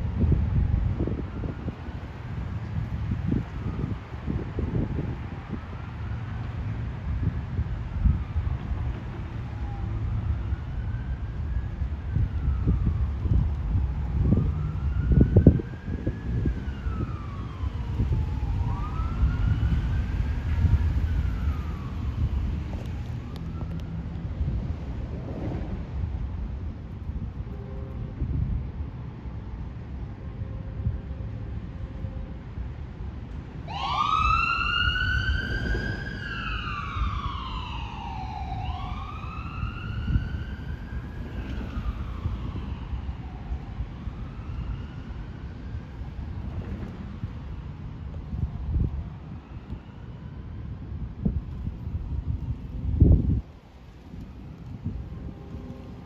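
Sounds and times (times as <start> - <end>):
siren wailing: 0.8 - 2.0, 3.2 - 6.4, 7.1 - 24.8, 33.5 - 47.7
freight train rumbling past: 24.2 - 33.6.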